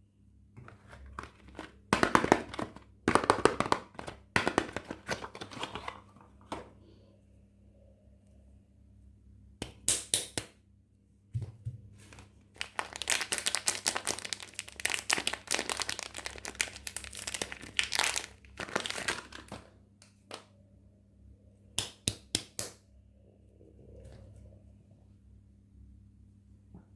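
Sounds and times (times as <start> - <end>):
packaging crinkling and tearing: 12.0 - 20.3.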